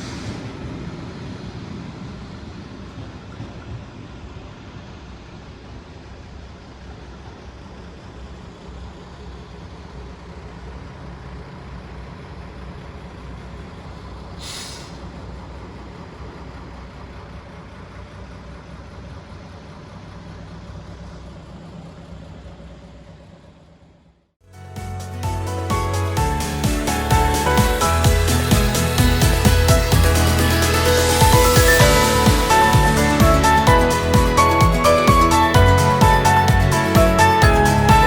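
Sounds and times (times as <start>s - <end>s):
air brake hiss: 0.0s - 0.6s, 14.4s - 15.2s
vehicle engine idling: 5.3s - 38.0s.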